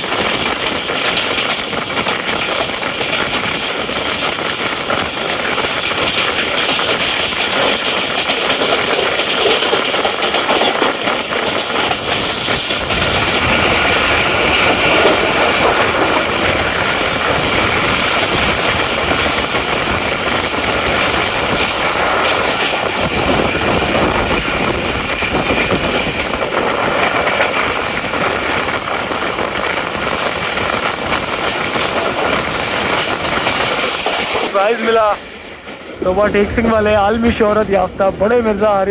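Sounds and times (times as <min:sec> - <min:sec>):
rail joint clicks: 0:00.0 - 0:38.9
train wheels rolling on rails: 0:00.0 - 0:38.9.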